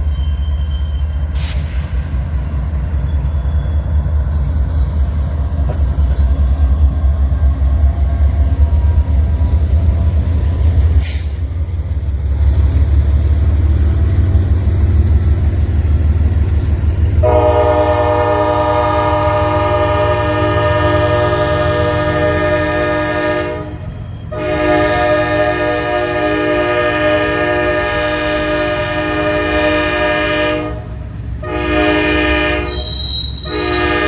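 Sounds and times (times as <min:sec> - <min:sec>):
diesel locomotives rumbling: 0:00.0 - 0:34.0
locomotive air horn: 0:17.2 - 0:34.0.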